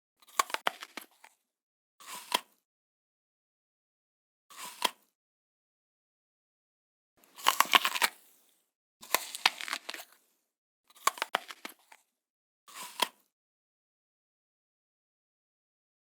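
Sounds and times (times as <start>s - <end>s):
crunching bites into crisp food: 7.2s - 8.4s, 9.0s - 10.2s.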